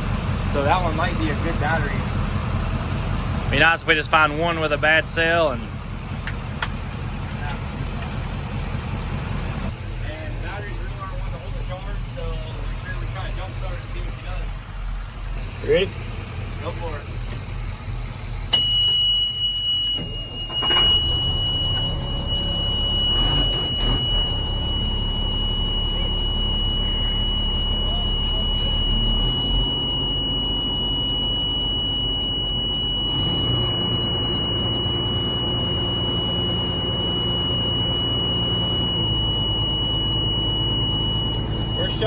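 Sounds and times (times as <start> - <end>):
diesel engine starting and running: 0.0 - 42.0
high-pitched warning buzzer: 18.6 - 42.0.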